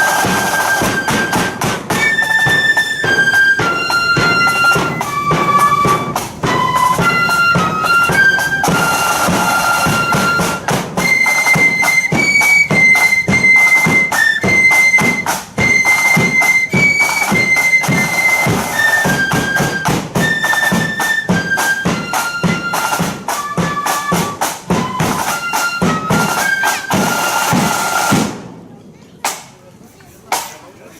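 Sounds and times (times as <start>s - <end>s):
fast dense drumming: 0.0s - 11.2s
flute melody: 0.0s - 28.3s.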